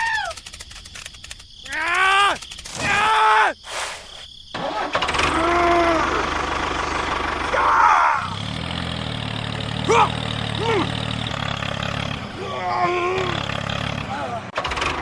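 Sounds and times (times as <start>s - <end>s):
engine idling: 4.6s - 15.0s
wordless voice cries: 5.3s - 6.3s.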